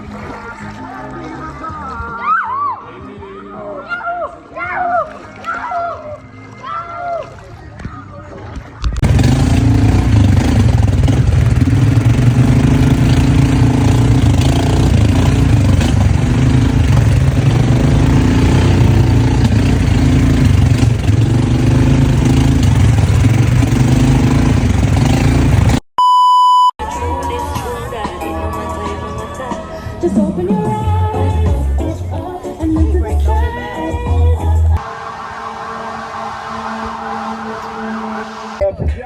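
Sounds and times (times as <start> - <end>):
engine rumbling: 8.6 - 25.8, 32.9 - 38.6
electronic beep: 26.0 - 26.8.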